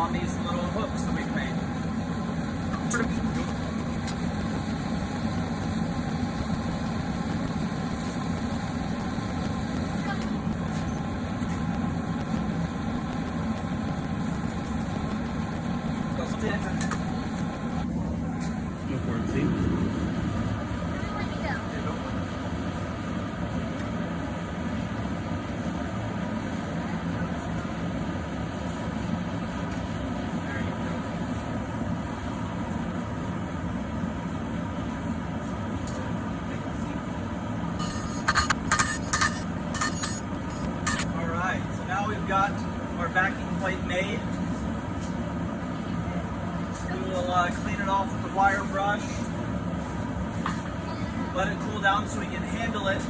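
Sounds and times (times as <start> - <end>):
forge rumbling: 2.6 - 22.8.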